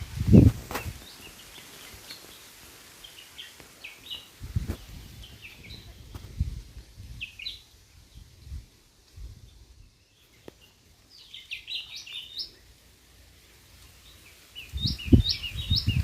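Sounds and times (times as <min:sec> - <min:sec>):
small bird chirping: 0:09.4 - 0:12.7, 0:14.0 - 0:16.0.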